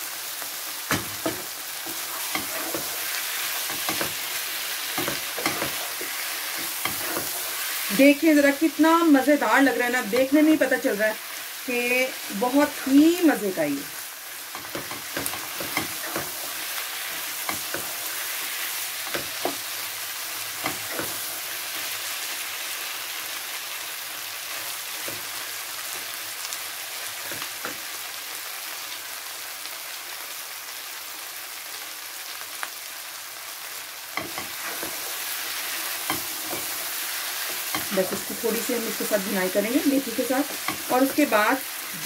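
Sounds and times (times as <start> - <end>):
potatoes sizzling in oil: 0.0 - 42.0
spatula knocking and scraping pan: 0.9 - 7.9, 14.5 - 19.8, 20.5 - 21.4, 34.2 - 41.4.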